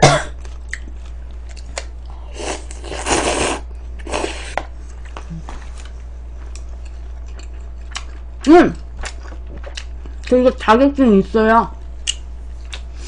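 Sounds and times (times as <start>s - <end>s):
crunchy chewing of food: 0.3s - 10.4s.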